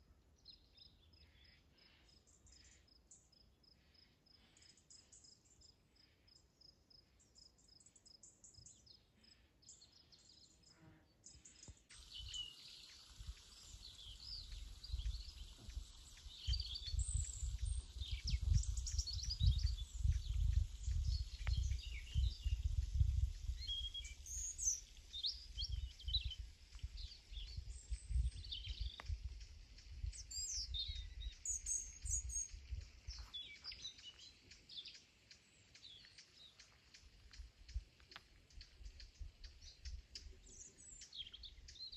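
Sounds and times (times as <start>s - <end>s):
wild birds chirping: 0.4s - 41.9s.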